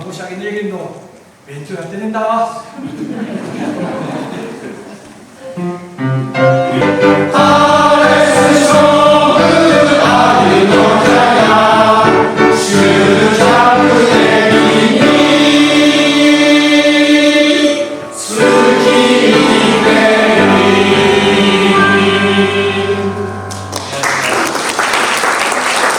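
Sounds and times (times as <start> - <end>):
male choir singing in harmony: 6.6 - 23.4.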